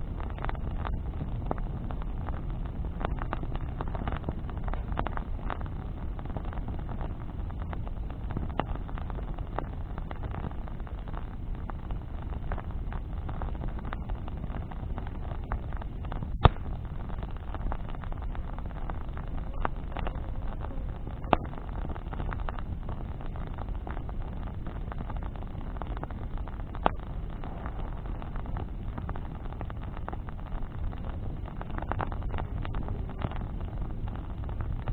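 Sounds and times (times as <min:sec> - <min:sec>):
bonfire crackling: 0:00.0 - 0:34.9
low rumble: 0:00.0 - 0:34.9
sharp loud pops: 0:16.3 - 0:16.8.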